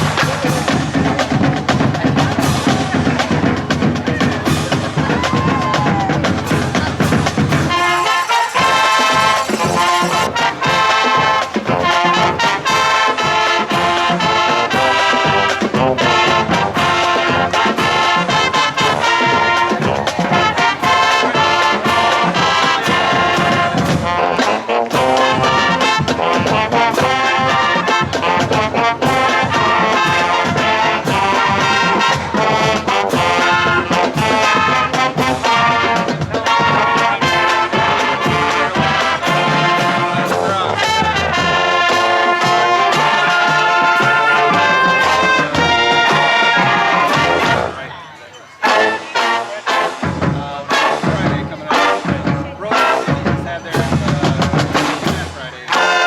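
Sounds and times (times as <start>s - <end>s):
lively brass music: 0.0s - 56.0s.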